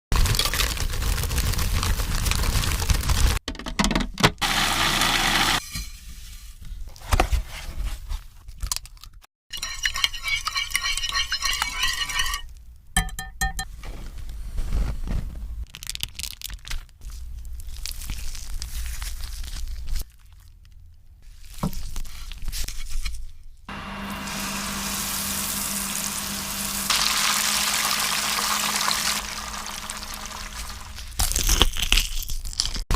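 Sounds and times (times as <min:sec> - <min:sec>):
chicken frying in hot oil: 0:23.7 - 0:31.2.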